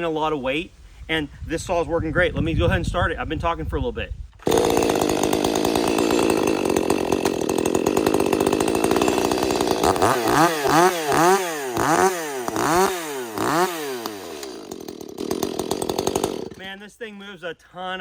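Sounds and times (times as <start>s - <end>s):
chainsaw revving: 4.4s - 16.7s.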